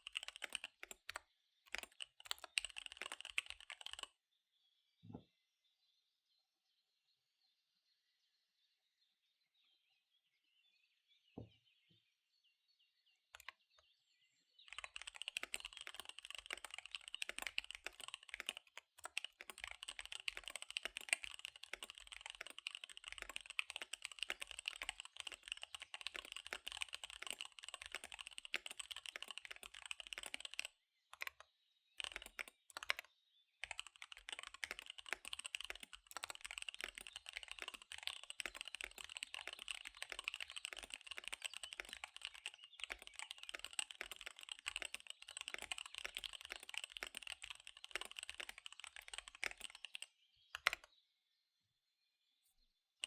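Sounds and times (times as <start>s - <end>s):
fast typing on mechanical keyboard: 0.0s - 4.1s, 14.7s - 31.4s, 32.0s - 50.9s.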